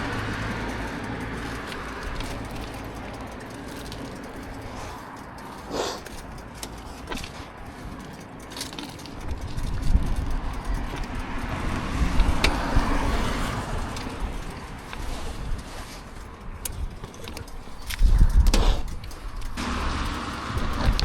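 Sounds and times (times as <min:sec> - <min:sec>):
light clicks: 0:00.0 - 0:21.0
motor vehicle passing: 0:00.0 - 0:21.0.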